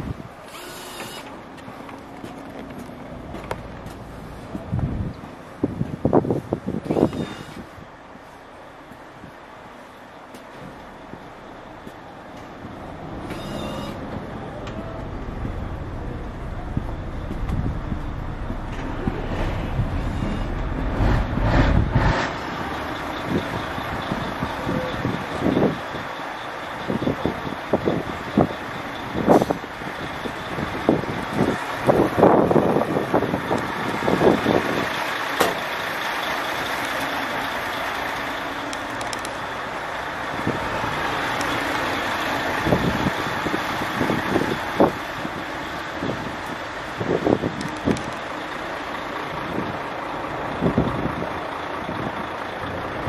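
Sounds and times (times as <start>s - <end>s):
truck engine running: 0.0s - 53.0s
rushing swell: 12.8s - 24.6s.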